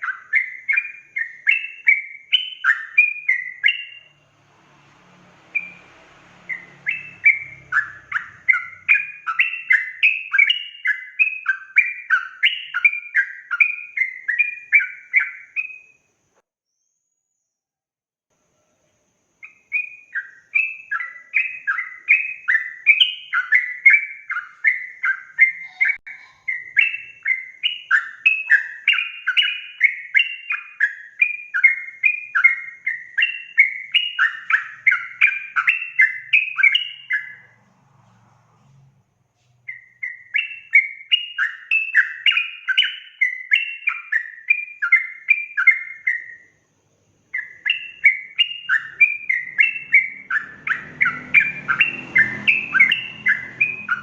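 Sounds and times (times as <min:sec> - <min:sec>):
bird singing bubbling notes: 0:06.5 - 0:15.9, 0:19.4 - 0:37.5, 0:47.3 - 0:54.0.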